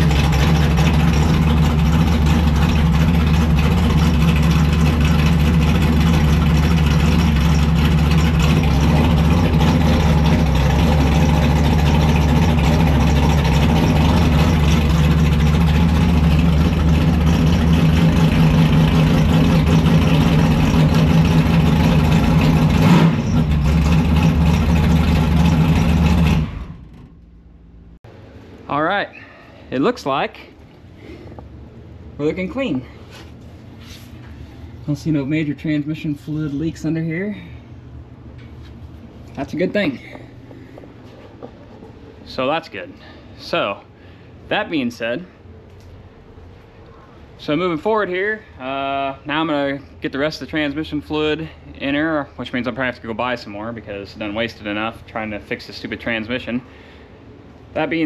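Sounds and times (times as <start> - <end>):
race car engine fast idle: 0.0 - 27.6.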